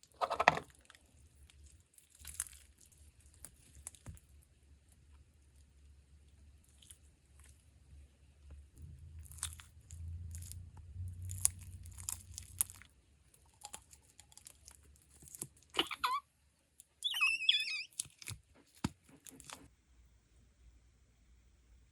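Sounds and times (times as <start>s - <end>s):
slime crackling and popping: 1.5s - 4.2s, 9.2s - 15.6s
slime squeaky squeals: 15.8s - 16.3s, 17.0s - 18.4s.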